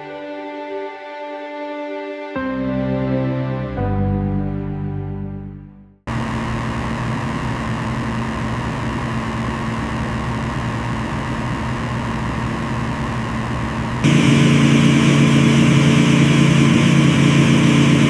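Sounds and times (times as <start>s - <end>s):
engine drone with low hum: 6.1s - 18.0s.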